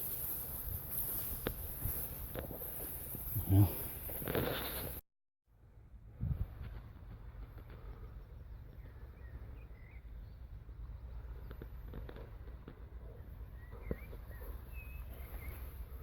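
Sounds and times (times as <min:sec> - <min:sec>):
light footsteps: 0:00.0 - 0:05.0
bird chirps: 0:08.5 - 0:11.8, 0:13.1 - 0:16.0.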